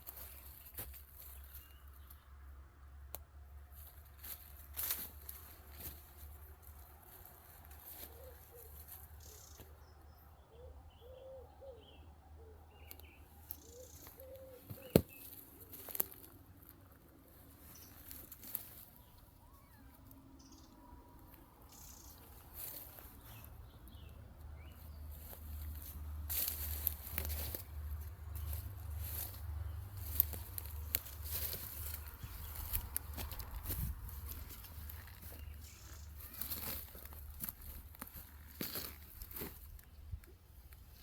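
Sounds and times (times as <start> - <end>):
low bird calls: 7.8 - 9.8, 10.4 - 15.9.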